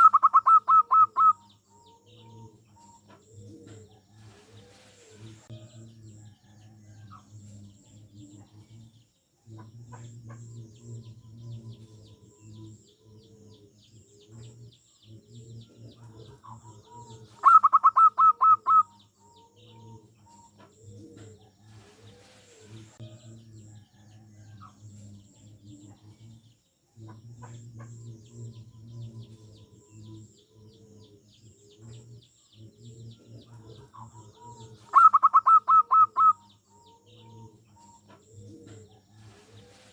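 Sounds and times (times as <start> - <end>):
rapid higher bird notes: 0.0 - 1.3, 17.4 - 18.8, 34.9 - 36.4
dove cooing: 0.0 - 5.4, 11.8 - 23.0, 27.1 - 39.9
faint high chirping: 0.0 - 7.2, 16.0 - 25.6, 27.8 - 39.9.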